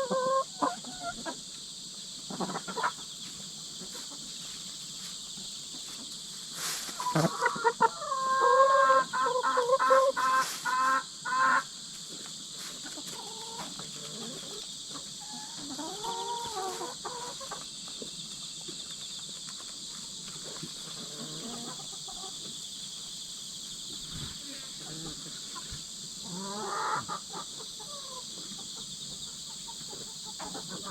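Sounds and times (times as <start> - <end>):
chicken clucking: 0.0 - 30.9
insects chirring: 0.0 - 30.9
chicken squawking: 6.9 - 11.7, 26.3 - 28.2.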